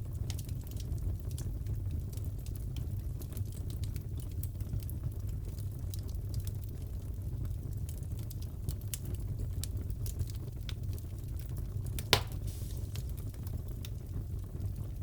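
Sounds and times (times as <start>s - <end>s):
fire low rumble: 0.0s - 15.0s
wood fire crackling and popping: 0.0s - 15.0s.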